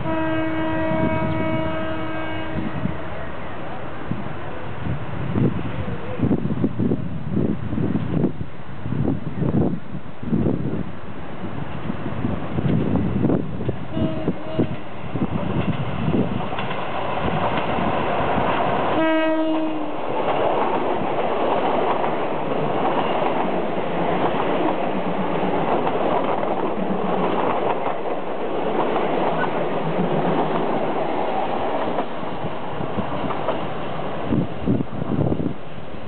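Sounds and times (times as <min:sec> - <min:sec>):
train horn blast: 0:00.0 - 0:03.5, 0:13.9 - 0:14.8, 0:18.9 - 0:20.0
train engines and wheels on rails: 0:00.0 - 0:36.0.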